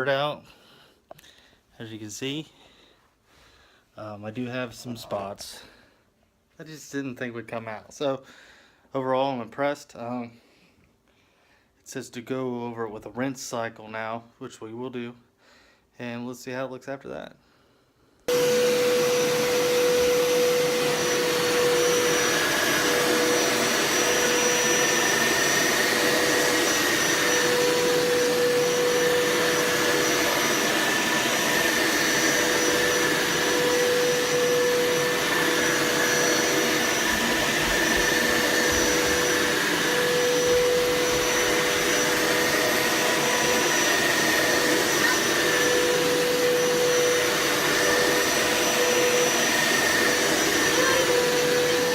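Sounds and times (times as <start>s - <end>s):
carpet shampooer motor whine: 18.3s - 51.9s.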